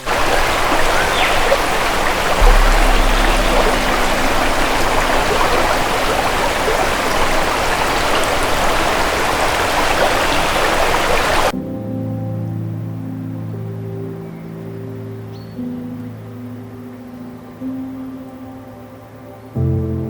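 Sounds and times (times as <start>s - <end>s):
stream flowing: 0.0s - 11.5s
low hum: 1.6s - 9.8s.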